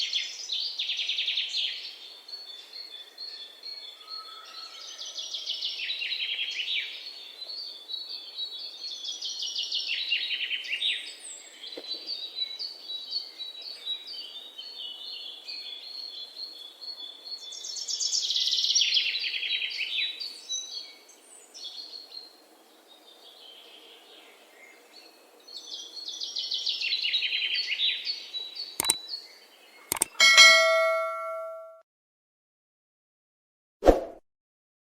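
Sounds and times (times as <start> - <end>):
sharp clicks: 28.8 - 29.0, 29.9 - 31.4
bell-like ding: 29.9 - 31.8.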